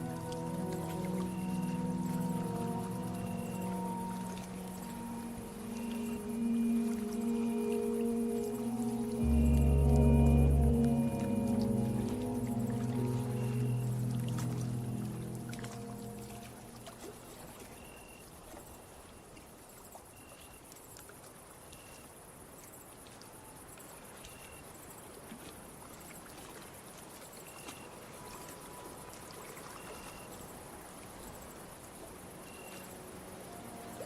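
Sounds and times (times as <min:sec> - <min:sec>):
high insect trill: 0:00.0 - 0:16.9
cricket chirps: 0:00.0 - 0:17.2, 0:27.2 - 0:34.0.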